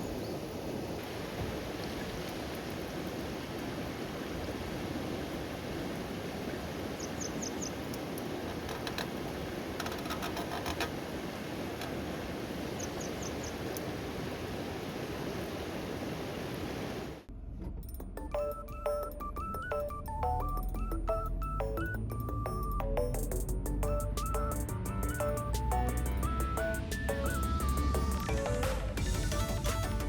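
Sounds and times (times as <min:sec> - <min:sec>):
rain falling: 0:00.0 - 0:17.3.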